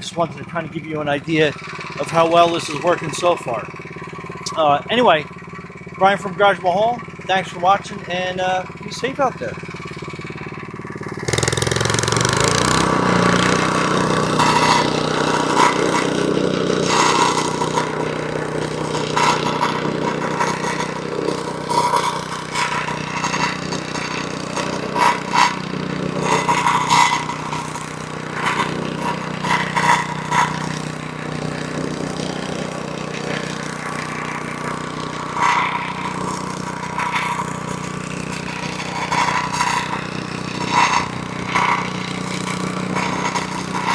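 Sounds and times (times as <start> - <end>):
plate compactor engine running: 0.0 - 43.9
plate rattling over loose stone: 14.3 - 43.9.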